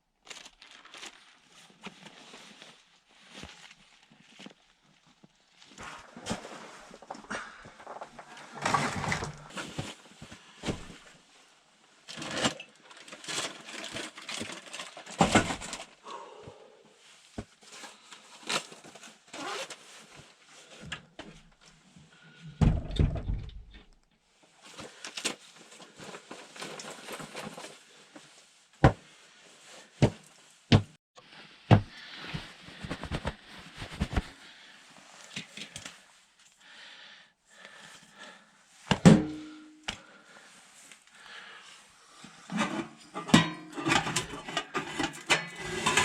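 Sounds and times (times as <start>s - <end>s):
crunches and knocks of handwork: 31.7s - 34.4s.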